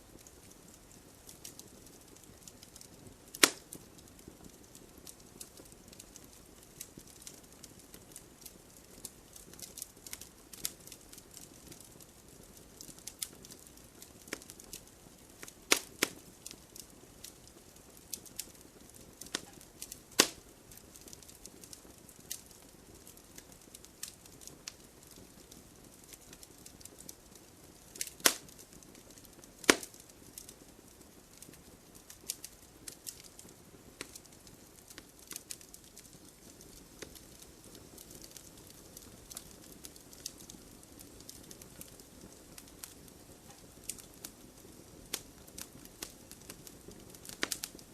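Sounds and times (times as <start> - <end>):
wood fire crackling and popping: 0.0 - 47.9
loud snaps of burning logs: 0.2 - 47.9.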